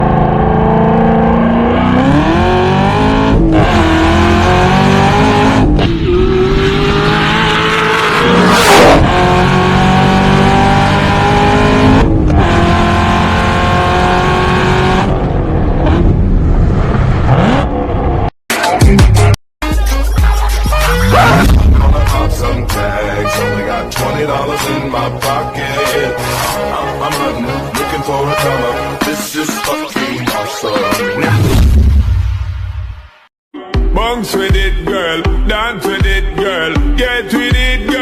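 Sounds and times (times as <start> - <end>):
car engines revving hard: 0.0 - 18.3.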